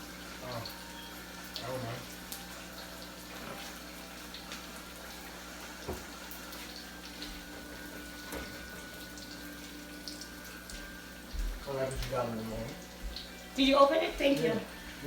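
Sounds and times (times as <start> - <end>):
steady kitchen hiss: 0.0 - 15.0.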